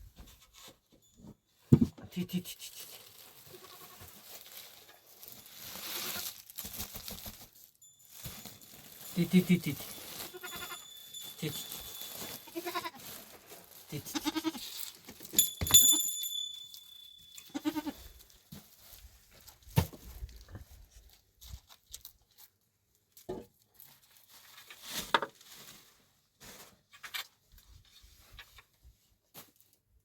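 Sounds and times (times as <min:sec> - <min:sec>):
goats bleating: 0:03.4 - 0:04.0, 0:10.1 - 0:10.9, 0:12.4 - 0:13.0, 0:14.0 - 0:14.7, 0:17.5 - 0:18.0.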